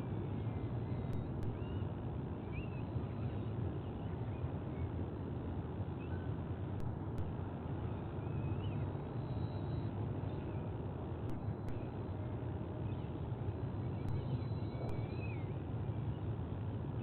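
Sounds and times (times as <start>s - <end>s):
low outdoor rumble: 0.0s - 17.0s
faint bird chirp: 13.8s - 16.3s.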